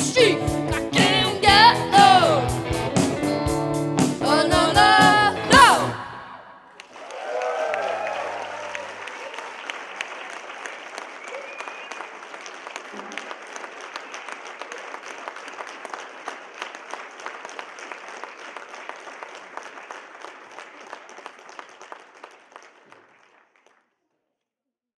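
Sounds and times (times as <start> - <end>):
audience applauding: 6.7 - 23.9.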